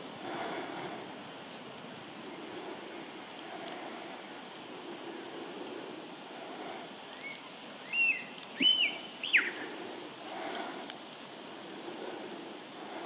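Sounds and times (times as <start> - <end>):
steady background hiss: 0.0 - 13.0
lyrebird whistled song: 7.2 - 9.6.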